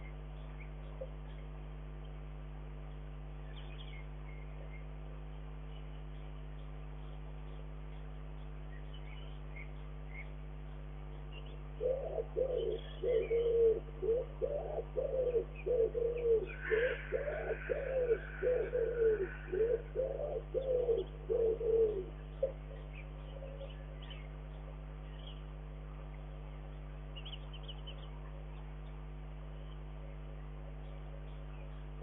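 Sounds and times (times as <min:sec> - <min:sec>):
higher noisy bird call: 0:08.7 - 0:32.0
bird cooing: 0:11.6 - 0:24.3.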